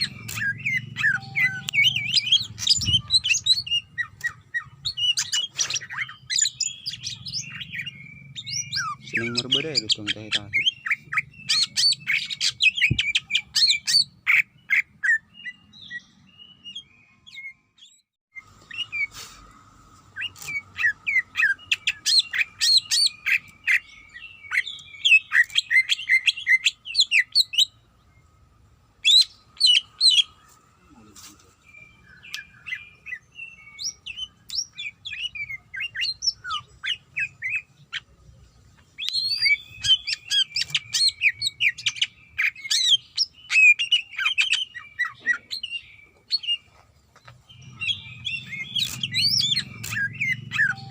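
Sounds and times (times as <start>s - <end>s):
bird singing sharp chirps and whistles: 0.0s - 19.1s, 39.0s - 46.7s, 47.5s - 50.9s
faint steady tone: 50.7s - 50.9s.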